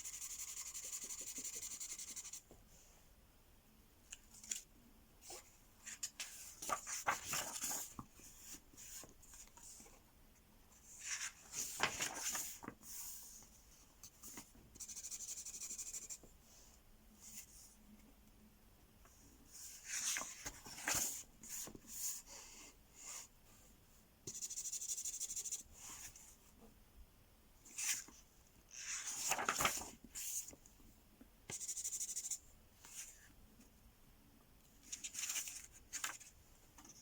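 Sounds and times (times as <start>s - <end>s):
marker scribbling on paper: 0.0s - 2.4s
paper rustling: 5.2s - 9.9s, 11.0s - 13.0s, 19.8s - 21.8s, 27.7s - 30.6s, 34.8s - 37.0s.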